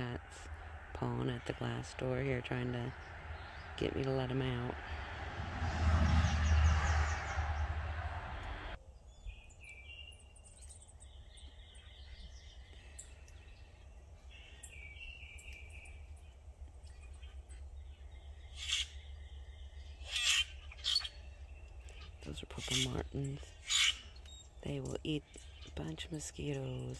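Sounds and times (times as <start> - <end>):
vehicle passing: 0.0 - 8.8
birds chirping: 0.0 - 26.9.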